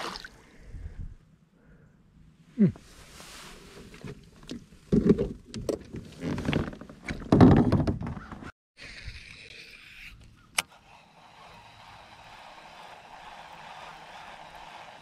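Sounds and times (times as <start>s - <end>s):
bumps and scrapes against kayak hull: 3.6s - 8.5s
steady hiss: 10.7s - 15.0s.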